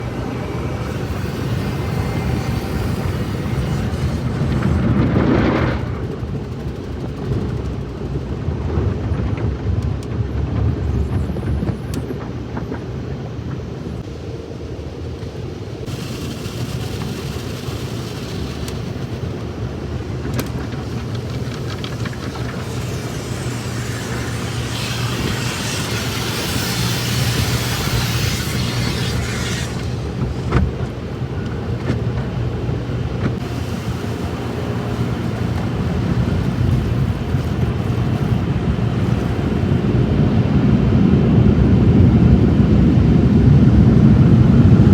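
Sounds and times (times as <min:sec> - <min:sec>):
high hiss: 0:00.0 - 0:07.2, 0:15.8 - 0:31.8
car wash machinery rumbling: 0:00.0 - 0:44.9.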